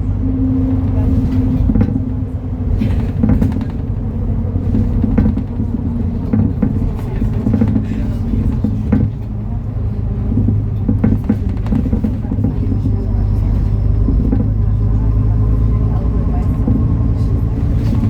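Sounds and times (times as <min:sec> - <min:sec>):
diesel bus engine drone: 0:00.0 - 0:18.0
rattles and knocks: 0:00.7 - 0:09.6, 0:10.2 - 0:15.2, 0:16.3 - 0:18.0.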